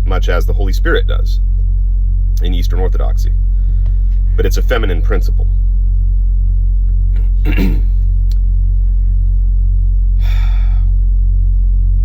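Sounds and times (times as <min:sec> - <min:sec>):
loud low hum: 0:00.0 - 0:12.0
sharp intake of breath: 0:10.2 - 0:10.9.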